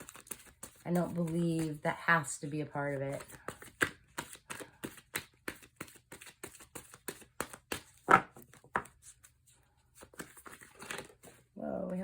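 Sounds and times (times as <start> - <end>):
cards being shuffled: 0.0 - 1.8, 3.2 - 9.3, 10.0 - 11.4.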